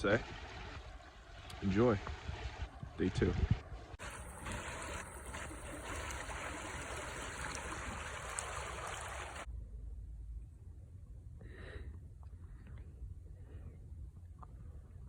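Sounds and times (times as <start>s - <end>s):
stream water running: 0.0s - 9.5s.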